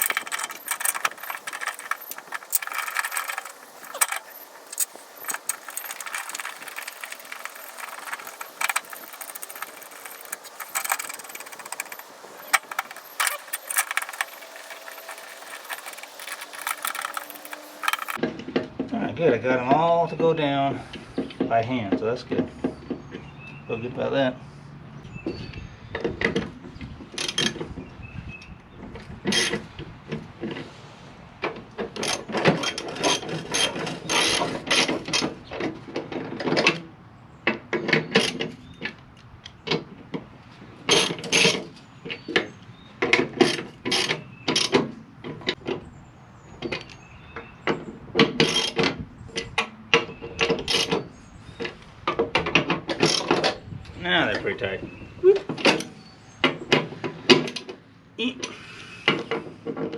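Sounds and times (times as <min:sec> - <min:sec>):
ratchet wrench clicking: 0:00.0 - 0:18.2.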